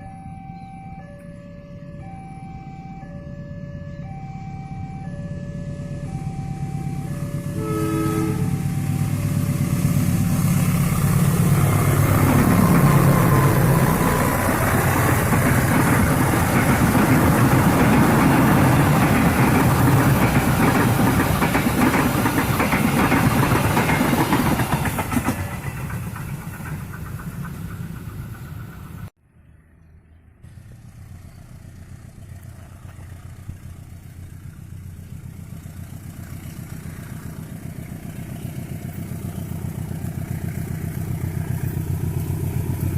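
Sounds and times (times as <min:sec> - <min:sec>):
locomotive engine drone: 0:00.0 - 0:42.9
steady rumble: 0:05.7 - 0:29.1
train wheels clattering on rails: 0:08.7 - 0:29.1.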